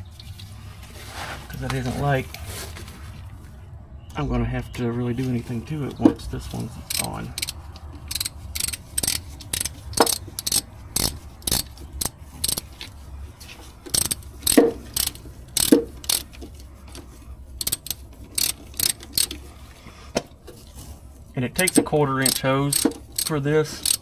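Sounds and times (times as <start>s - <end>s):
ratchet clicking: 6.4s - 13.0s, 13.9s - 17.0s, 17.6s - 19.4s, 21.6s - 24.0s.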